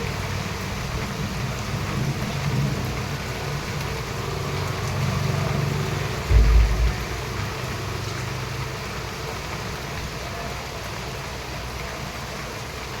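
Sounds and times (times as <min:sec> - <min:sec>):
steady rain falling: 0:00.0 - 0:13.0
low rumble: 0:06.3 - 0:07.8.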